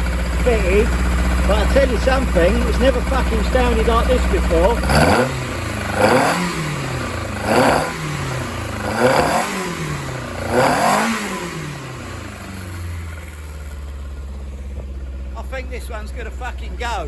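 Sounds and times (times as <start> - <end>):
race engine revving: 0.0 - 13.3.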